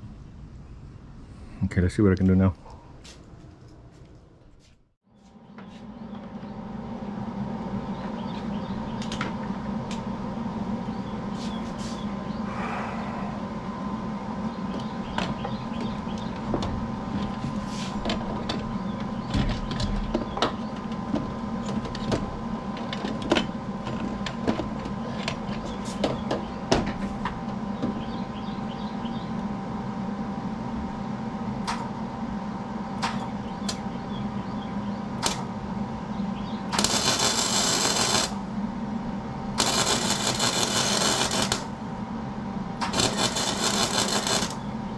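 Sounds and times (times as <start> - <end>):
mechanical hum: 0.0 - 44.9.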